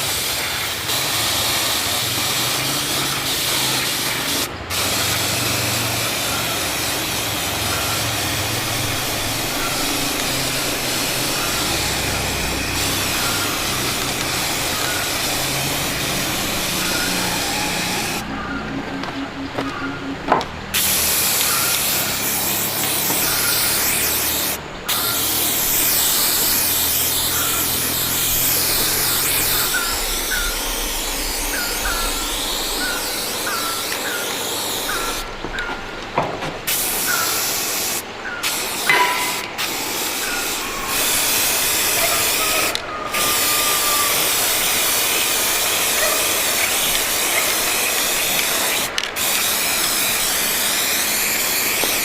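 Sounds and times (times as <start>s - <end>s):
arc welding hiss: 0.0s - 18.3s, 20.7s - 35.7s, 36.6s - 52.0s.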